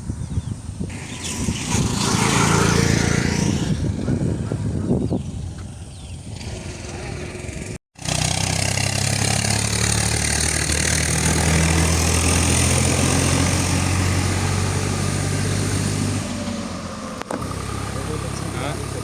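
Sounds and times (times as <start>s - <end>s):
motorcycle engine running: 17.2s - 19.0s.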